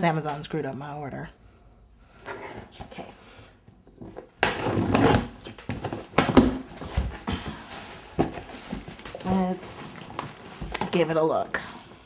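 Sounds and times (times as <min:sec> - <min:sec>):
cardboard box rustling and scraping: 0:04.0 - 0:10.8.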